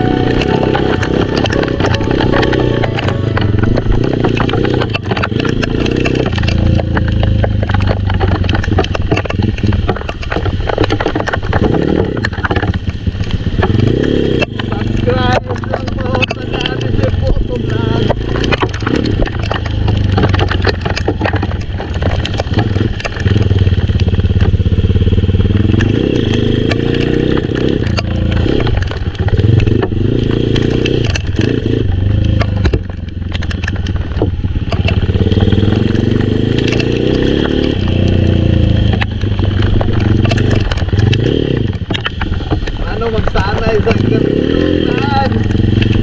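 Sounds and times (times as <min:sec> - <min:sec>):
clicks and clatter: 0:00.0 - 0:46.0
motorcycle engine revving: 0:00.0 - 0:46.0.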